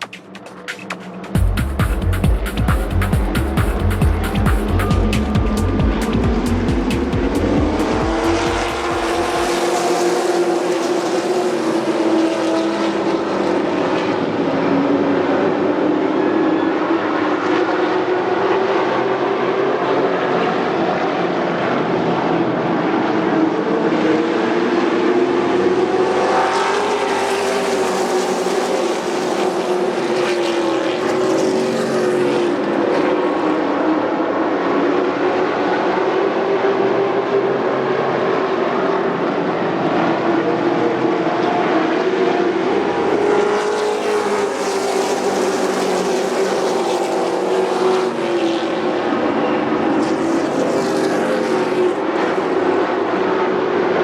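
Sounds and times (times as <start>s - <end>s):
race truck engines passing: 0.0s - 53.2s.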